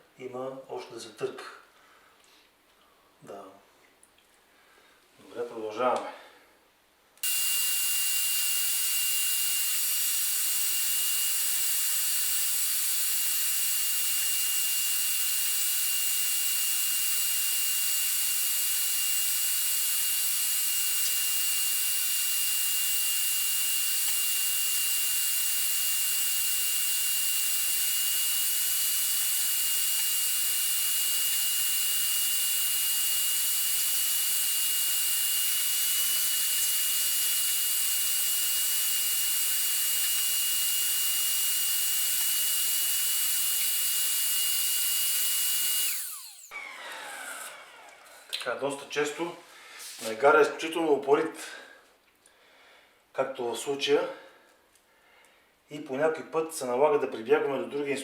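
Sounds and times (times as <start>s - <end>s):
power tool motor whining: 7.2s - 48.4s.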